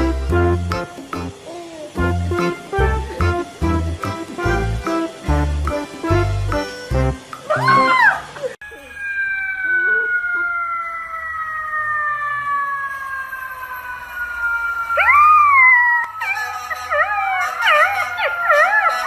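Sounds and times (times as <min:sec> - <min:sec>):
puppy howling: 0:07.5 - 0:11.2, 0:15.0 - 0:19.0
siren falling tone: 0:07.5 - 0:19.0.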